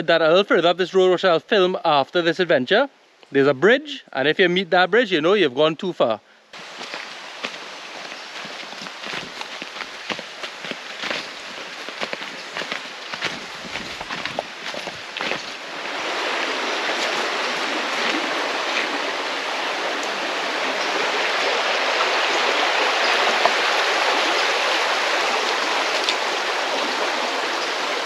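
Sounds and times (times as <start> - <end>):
river rushing over rocks: 6.6 - 28.0.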